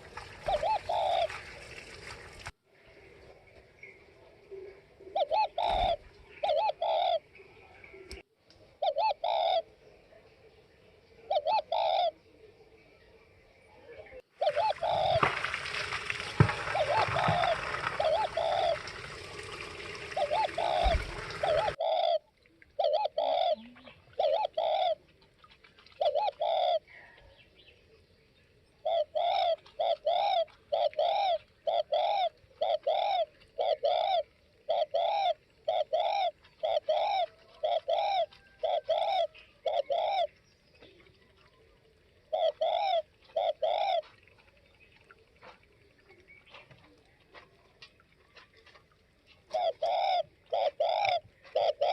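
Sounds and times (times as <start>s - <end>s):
dove cooing: 0.0s - 1.6s, 4.5s - 7.3s, 8.8s - 9.7s, 11.2s - 12.2s, 14.4s - 25.1s, 25.9s - 27.2s, 28.8s - 41.0s, 42.0s - 44.5s, 48.6s - 51.9s.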